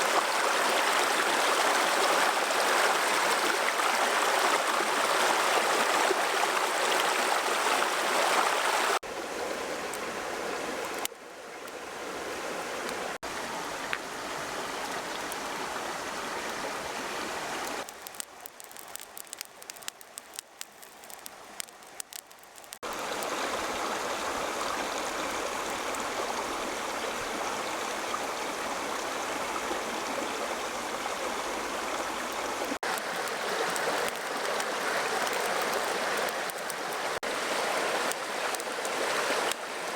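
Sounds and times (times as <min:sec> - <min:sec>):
running water rushing: 0:00.0 - 0:39.9
small clicks and pops: 0:17.8 - 0:23.0.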